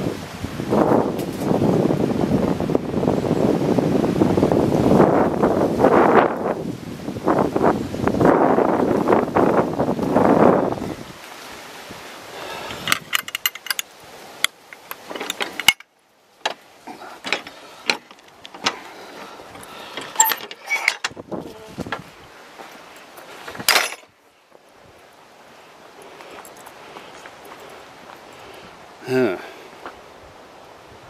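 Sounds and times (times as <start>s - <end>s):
rustling on microphone: 0.1s - 2.8s, 16.5s - 28.9s
footsteps crunching on trail: 21.3s - 23.7s, 24.4s - 29.0s, 29.7s - 30.1s.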